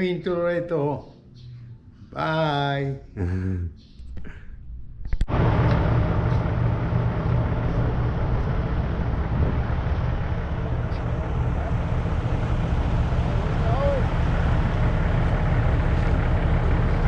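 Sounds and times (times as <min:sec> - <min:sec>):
wind and road noise: 0:05.0 - 0:17.0
motorcycle engine rumbling: 0:05.2 - 0:17.0.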